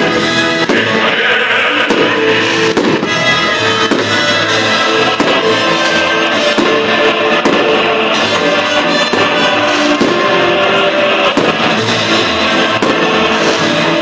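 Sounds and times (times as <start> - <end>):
music with held notes and sharp hits: 0.0 - 14.0.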